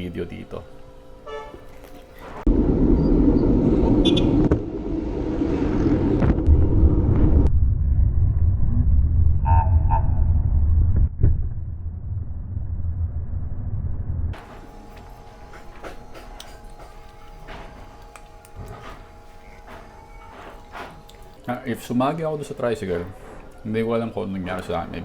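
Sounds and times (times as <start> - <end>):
wind rumble: 2.4 - 14.4.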